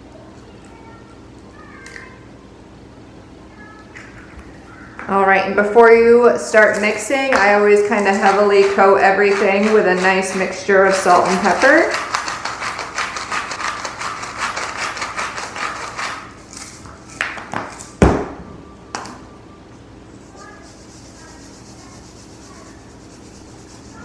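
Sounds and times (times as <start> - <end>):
shaker rattling: 6.6 - 16.8, 20.2 - 24.0.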